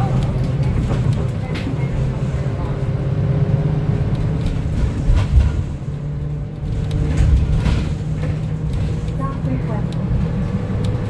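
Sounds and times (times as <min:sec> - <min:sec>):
bus engine droning: 0:00.0 - 0:11.0
road noise: 0:00.0 - 0:11.0
body knocks and rattles: 0:04.2 - 0:09.6.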